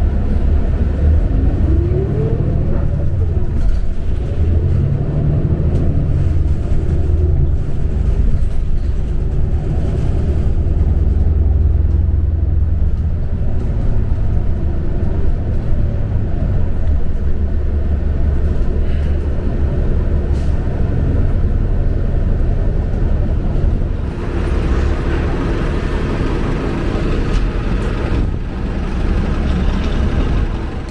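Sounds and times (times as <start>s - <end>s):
bus engine drone: 0.0s - 30.9s
rushing noise: 23.0s - 30.9s.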